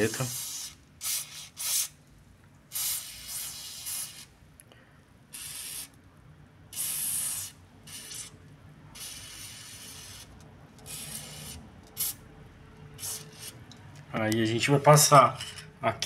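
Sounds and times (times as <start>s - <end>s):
aerosol spray hissing: 0.1s - 1.9s, 2.7s - 4.3s, 6.7s - 8.3s, 10.9s - 12.2s.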